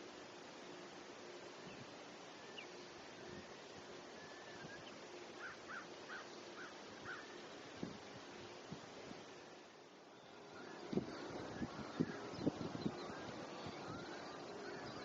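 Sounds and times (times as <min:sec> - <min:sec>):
outdoor hiss: 0:00.0 - 0:15.0
bird calls: 0:01.5 - 0:08.6, 0:10.1 - 0:15.0.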